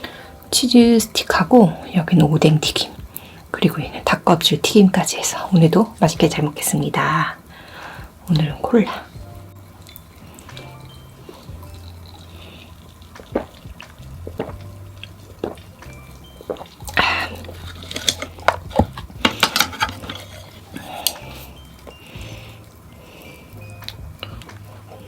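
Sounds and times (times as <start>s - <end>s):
cola pouring and fizzing: 2.4s - 25.0s
clicks and drips: 7.6s - 25.0s.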